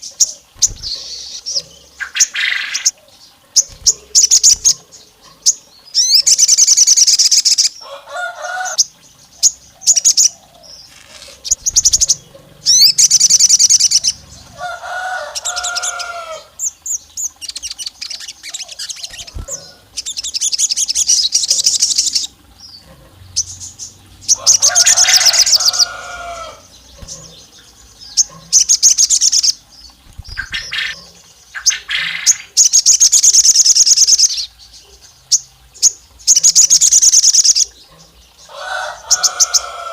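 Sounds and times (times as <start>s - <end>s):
songbird chattering trills: 0.0s - 39.9s.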